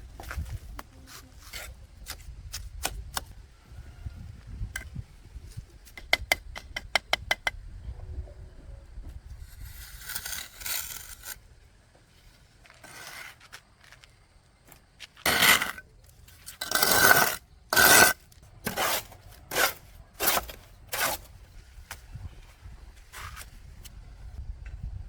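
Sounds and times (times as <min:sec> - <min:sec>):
scraping strokes: 0:09.4 - 0:11.4, 0:12.6 - 0:13.6, 0:15.2 - 0:22.0.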